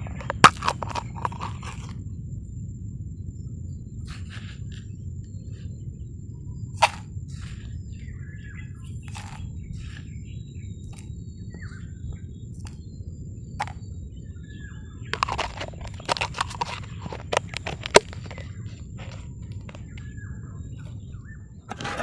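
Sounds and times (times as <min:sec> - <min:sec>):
clicks and scrapes: 0:00.0 - 0:02.0, 0:09.0 - 0:10.1, 0:15.2 - 0:20.0, 0:21.7 - 0:22.0
small birds chirping: 0:00.0 - 0:22.0
steady low rumble: 0:00.0 - 0:22.0.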